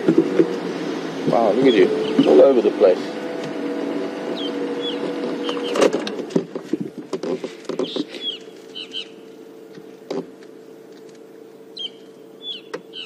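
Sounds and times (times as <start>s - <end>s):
vehicle engine hum: 0.0s - 13.0s
high bird chirps: 4.3s - 5.8s, 7.8s - 9.2s, 11.8s - 13.0s
clicks and rustles: 5.0s - 8.8s.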